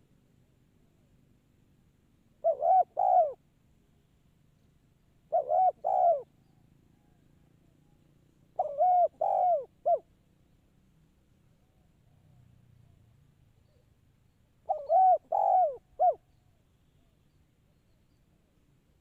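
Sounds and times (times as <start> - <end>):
dove cooing: 2.4 - 3.4, 5.3 - 6.3, 8.6 - 10.1, 14.6 - 16.3.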